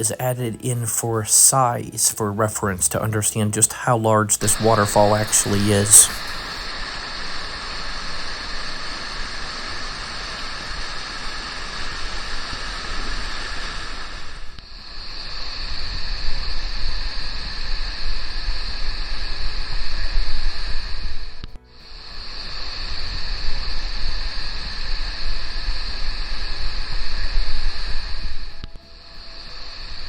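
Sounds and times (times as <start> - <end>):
waterfall roaring: 4.4 - 7.2.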